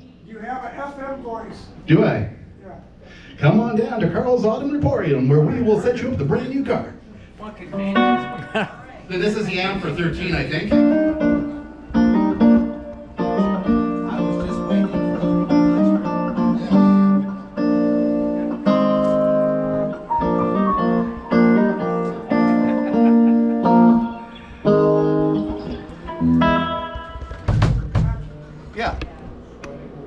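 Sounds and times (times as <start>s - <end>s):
electric guitar chords through amp: 10.7s - 28.3s.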